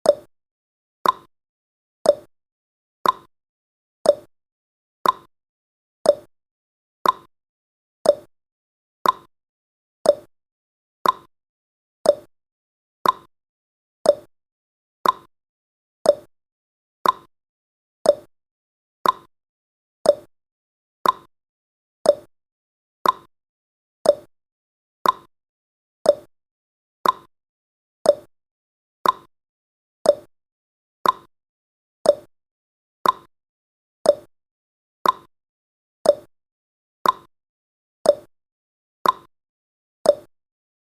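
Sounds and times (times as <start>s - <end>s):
clock ticking: 3.0s - 3.3s, 5.0s - 5.3s, 7.0s - 7.3s, 9.0s - 9.3s, 11.0s - 11.3s, 13.0s - 13.3s, 15.0s - 15.3s, 16.1s - 16.3s, 17.0s - 17.3s, 18.1s - 18.3s, 19.0s - 19.3s, 21.0s - 21.3s, 22.1s - 22.3s, 23.0s - 23.3s, 24.0s - 24.3s, 25.0s - 25.3s, 26.1s - 26.3s, 27.0s - 27.3s, 28.1s - 28.3s, 29.0s - 29.3s, 30.1s - 30.3s, 31.0s - 31.3s, 32.1s - 32.3s, 33.0s - 33.3s, 34.1s - 34.3s, 35.0s - 35.3s, 36.1s - 36.3s, 37.0s - 37.3s, 38.1s - 38.3s, 39.0s - 39.3s, 40.1s - 40.3s.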